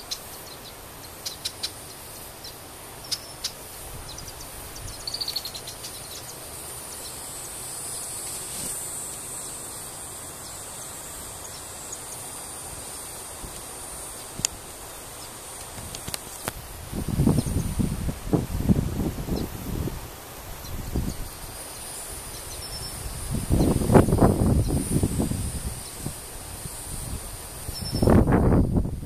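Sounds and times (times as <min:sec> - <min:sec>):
bird chirps: 0:00.0 - 0:07.2
high-pitched hiss: 0:00.0 - 0:29.0.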